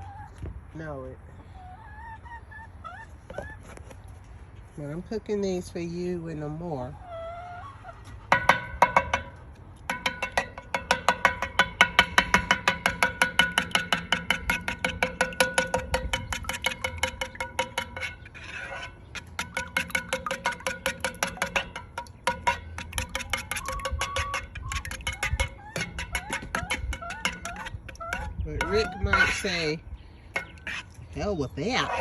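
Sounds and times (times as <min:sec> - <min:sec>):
metal utensil striking metal pan: 0:09.9 - 0:29.8.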